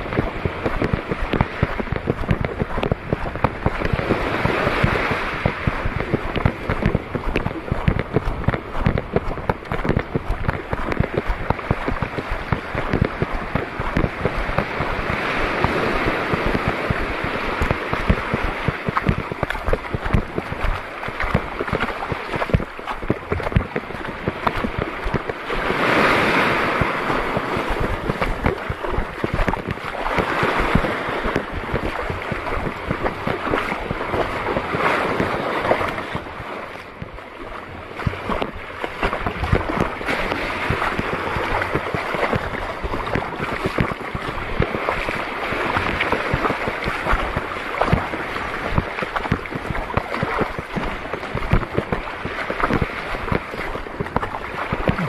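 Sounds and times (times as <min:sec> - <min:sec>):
sea water sloshing: 0:00.0 - 0:55.0
wind buffeting microphone: 0:00.0 - 0:55.0.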